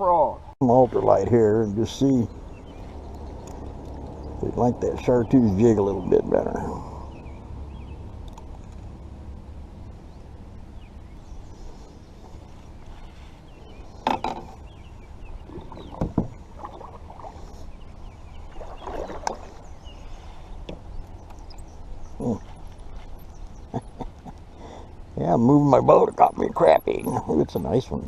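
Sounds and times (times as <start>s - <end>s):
steady low rumble: 0.0s - 28.0s
knocks on boat hull: 15.9s - 16.4s.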